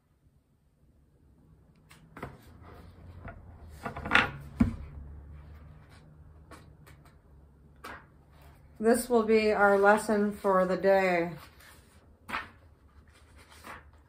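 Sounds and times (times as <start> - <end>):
book pages rustling: 1.8 - 4.0, 5.4 - 7.2, 9.7 - 14.0.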